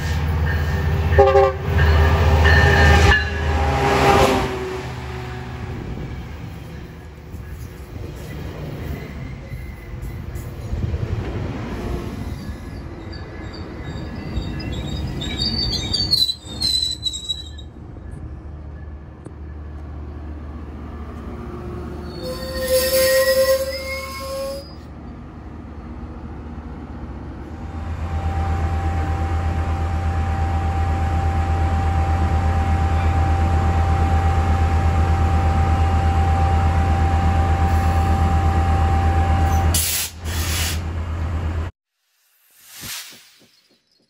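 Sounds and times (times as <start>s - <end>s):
passenger train rumbling by: 0.0s - 41.7s
metallic wheel squeal: 6.7s - 10.6s, 12.1s - 19.0s, 21.9s - 24.9s.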